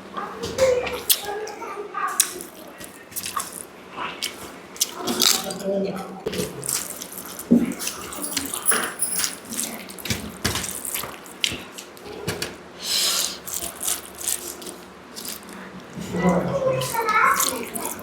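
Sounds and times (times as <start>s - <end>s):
wet chewing sounds: 1.0s - 5.6s, 6.2s - 8.7s, 13.1s - 18.0s.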